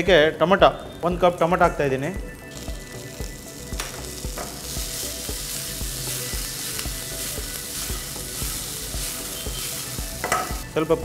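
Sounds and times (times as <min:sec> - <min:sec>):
vegetables sizzling in hot oil: 0:02.5 - 0:10.8.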